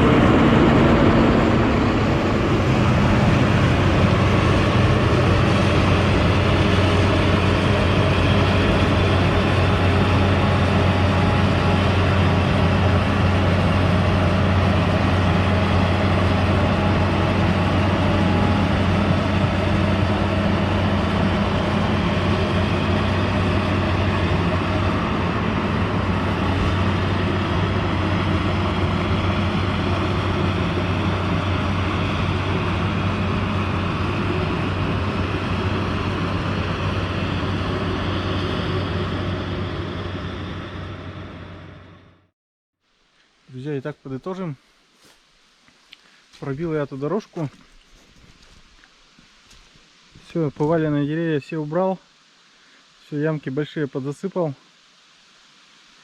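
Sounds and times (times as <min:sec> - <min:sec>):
excavator diesel engine droning: 0:00.0 - 0:42.3.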